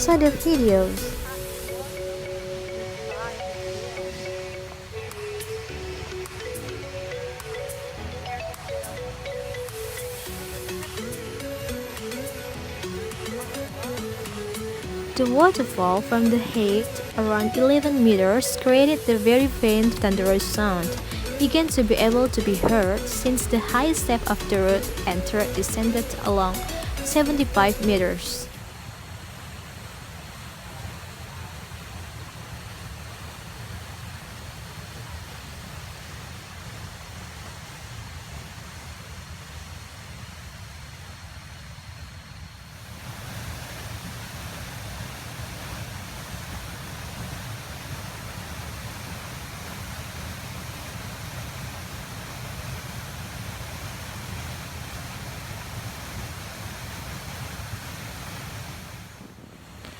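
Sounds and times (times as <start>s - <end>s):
waterfall roaring: 0.0s - 42.1s.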